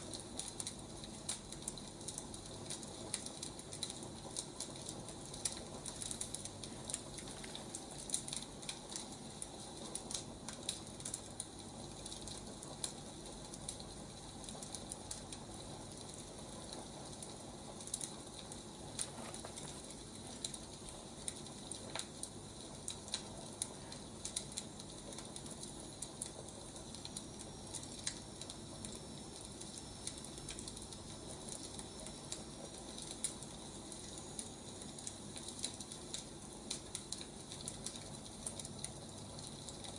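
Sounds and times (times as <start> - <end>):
firewood crackling: 3.1 - 10.8, 17.1 - 22.2.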